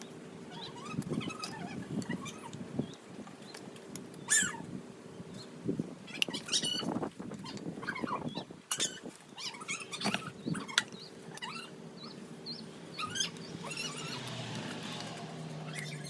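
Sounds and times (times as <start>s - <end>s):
small birds chirping: 0.0s - 16.0s
vehicle engine hum: 10.5s - 16.0s.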